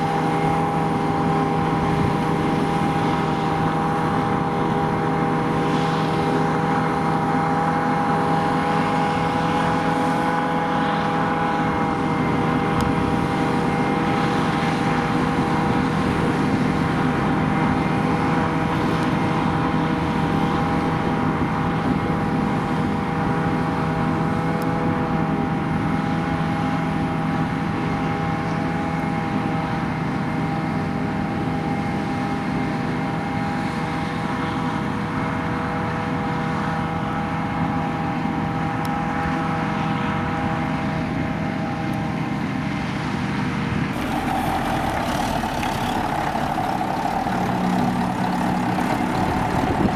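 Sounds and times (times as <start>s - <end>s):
diesel engine running: 43.9s - 49.9s
machinery whining tones: 44.0s - 49.9s.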